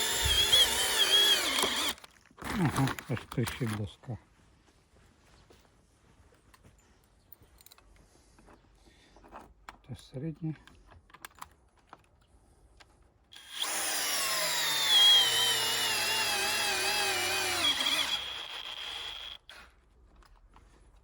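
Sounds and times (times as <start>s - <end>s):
cordless drill whining: 0.0s - 2.0s, 13.3s - 19.7s.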